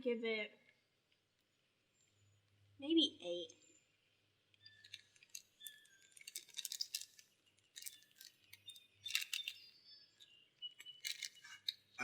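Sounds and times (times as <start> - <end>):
snack packaging crinkling: 4.6 - 12.0.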